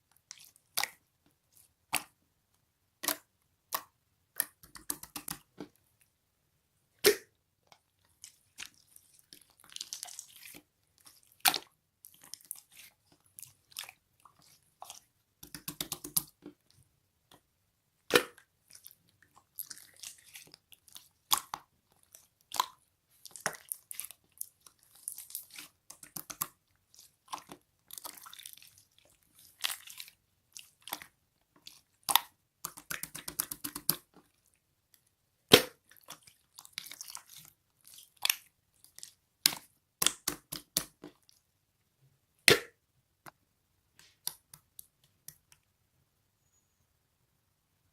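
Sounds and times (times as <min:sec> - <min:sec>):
slime squished by hand: 0:08.2 - 0:16.4.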